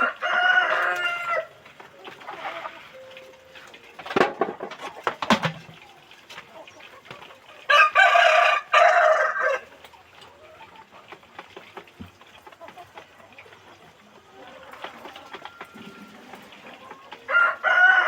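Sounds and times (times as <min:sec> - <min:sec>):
rooster crowing: 0:00.0 - 0:01.6, 0:07.7 - 0:09.7, 0:17.2 - 0:18.0
hens clucking: 0:00.0 - 0:18.0.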